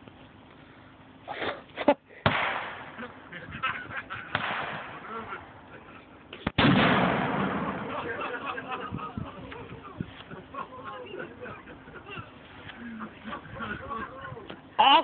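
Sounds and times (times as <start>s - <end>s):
loud bang with long tail: 2.2s - 3.1s, 4.3s - 5.2s, 6.4s - 8.6s
sharp crack: 2.2s - 3.2s, 4.2s - 5.5s, 6.4s - 8.6s
voices: 2.9s - 6.5s, 7.4s - 15.0s.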